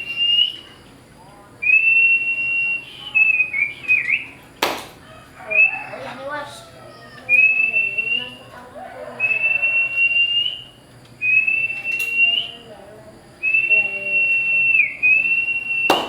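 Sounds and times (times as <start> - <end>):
bird whistling high notes: 1.6 - 4.4, 9.2 - 12.6, 13.4 - 16.0.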